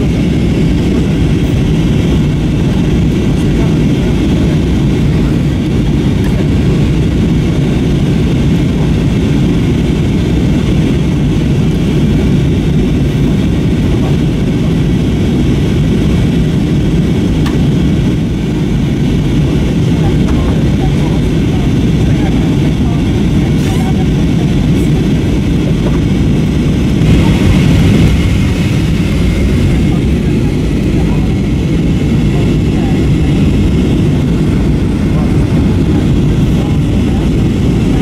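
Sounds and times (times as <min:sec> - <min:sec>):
airliner cabin engine noise: 0:00.0 - 0:38.0.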